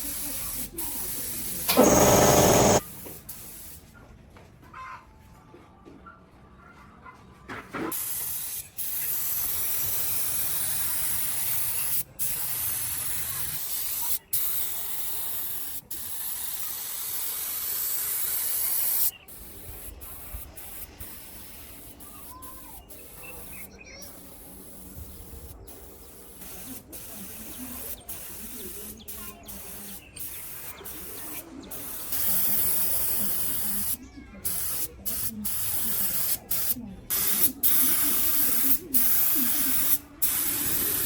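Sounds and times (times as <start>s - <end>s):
air tool hissing: 0.3s - 3.8s, 29.6s - 41.0s.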